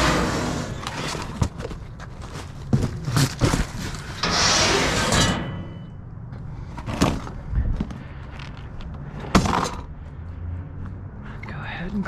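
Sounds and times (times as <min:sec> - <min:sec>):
metal scraping: 0:00.0 - 0:01.6, 0:03.2 - 0:06.1
metal ringing tone: 0:05.1 - 0:06.1.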